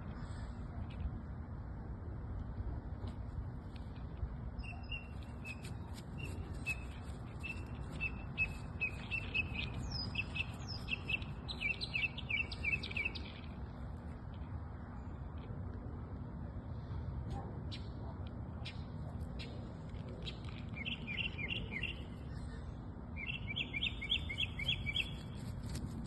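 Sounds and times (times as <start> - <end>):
bird chirping and whistling: 7.4 - 13.2, 23.2 - 25.2.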